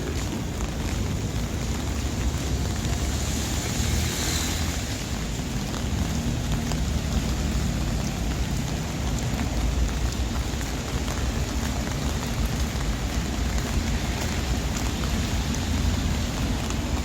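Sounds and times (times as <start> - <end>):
rain falling on street: 0.0 - 17.0.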